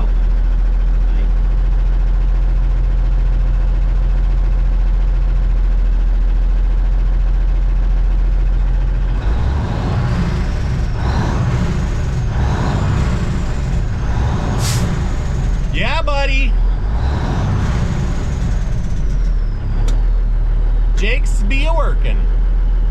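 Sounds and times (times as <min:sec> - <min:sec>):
diesel truck engine running: 0:00.0 - 0:22.9
short hiss: 0:14.6 - 0:15.0.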